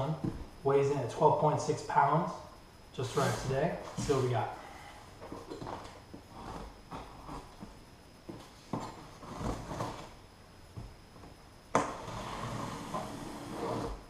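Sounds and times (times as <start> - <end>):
steady rasping noise: 3.0 - 5.2.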